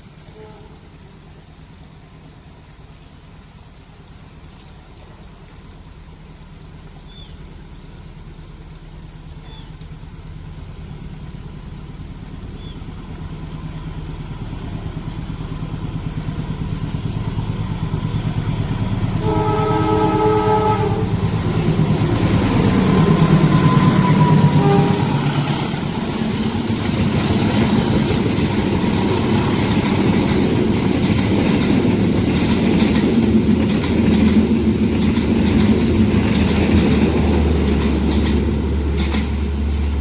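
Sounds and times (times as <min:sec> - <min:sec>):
rush and rumble of train: 0:00.0 - 0:40.0
train engine hum: 0:00.0 - 0:40.0
train horn blast: 0:00.2 - 0:00.9, 0:19.0 - 0:26.0.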